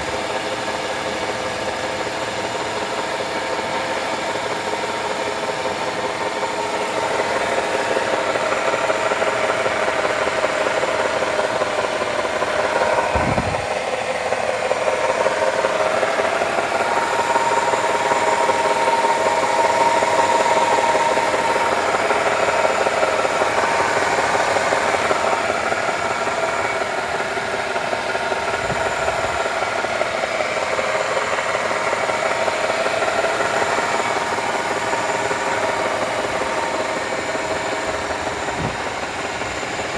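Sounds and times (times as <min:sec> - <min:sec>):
transmission whining: 0:06.1 - 0:39.9
low thumps: 0:38.4 - 0:39.0.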